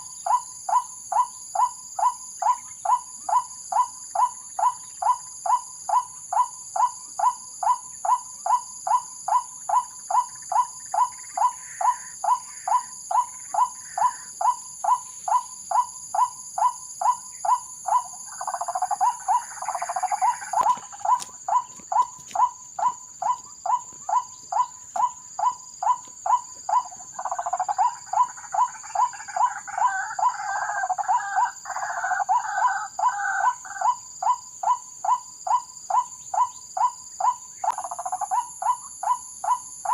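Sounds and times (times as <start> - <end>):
waterhen call: 17.9 - 34.0.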